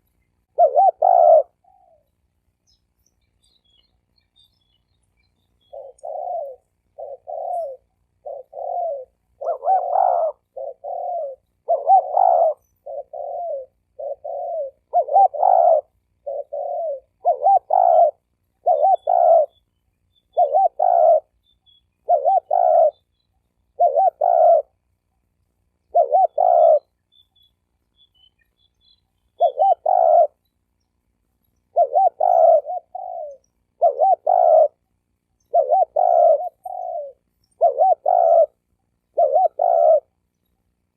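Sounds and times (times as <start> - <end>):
dove cooing: 0.0 - 2.1, 5.6 - 19.6, 20.3 - 21.4, 22.0 - 24.9, 25.9 - 27.0, 29.3 - 30.4, 31.7 - 40.2.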